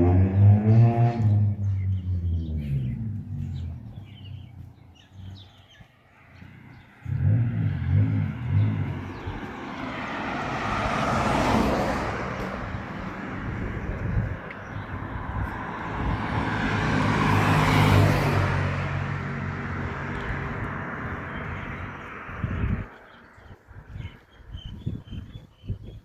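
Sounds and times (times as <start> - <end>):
vehicle engines passing: 0.0 - 25.1
tyre and road noise: 0.0 - 26.0.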